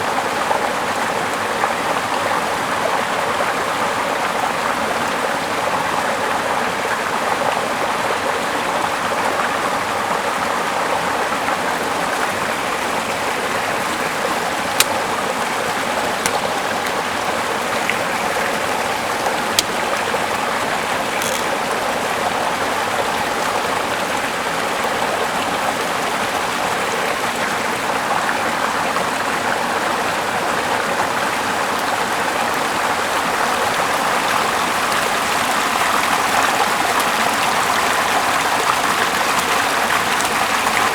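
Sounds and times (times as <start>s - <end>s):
river flowing over rocks: 9.4s - 40.9s
sharp clicks: 14.8s - 15.1s, 16.2s - 17.0s, 21.1s - 21.6s.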